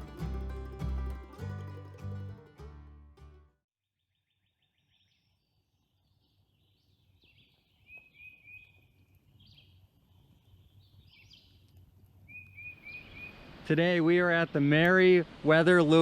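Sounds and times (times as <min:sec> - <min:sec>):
birds chirping and whistling: 0:06.5 - 0:09.7, 0:12.3 - 0:13.4.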